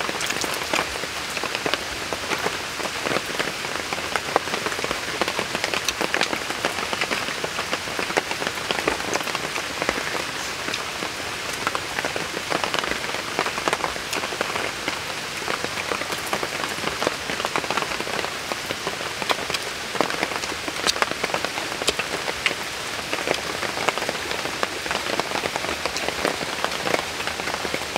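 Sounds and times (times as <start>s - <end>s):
rain falling on leaves: 0.0s - 27.9s.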